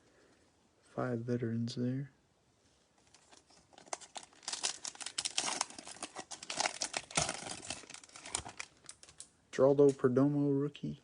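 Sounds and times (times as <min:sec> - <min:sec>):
wrapper tearing and crinkling: 0:03.1 - 0:09.3.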